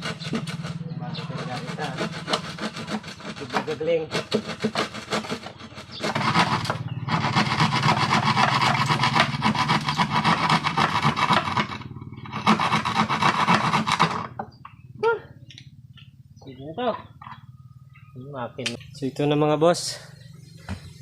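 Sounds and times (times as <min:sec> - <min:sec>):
rasp scraping wood: 0:00.0 - 0:14.5.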